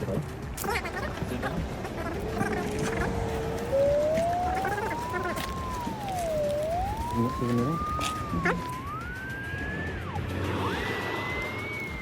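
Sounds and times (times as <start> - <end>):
gliding whistling tone: 1.8 - 12.0.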